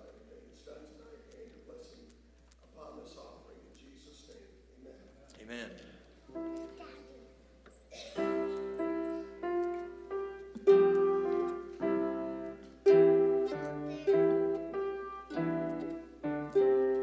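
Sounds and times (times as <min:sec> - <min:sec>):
slow piano chords: 0:06.3 - 0:17.0.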